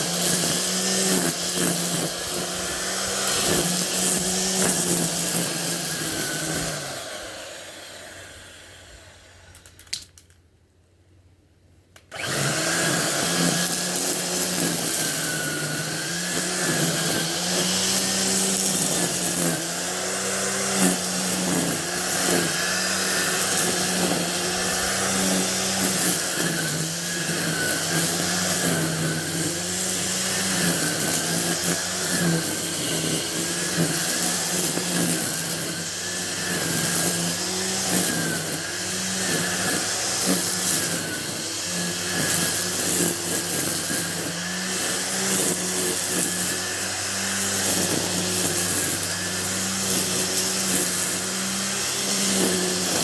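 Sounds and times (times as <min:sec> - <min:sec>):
engine running: 0:12.9 - 0:53.0.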